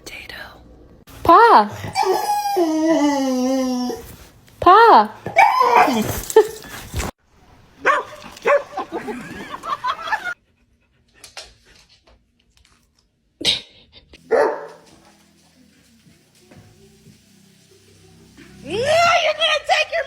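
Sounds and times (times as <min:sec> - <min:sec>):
dog barking: 0:07.8 - 0:08.9, 0:14.2 - 0:14.9.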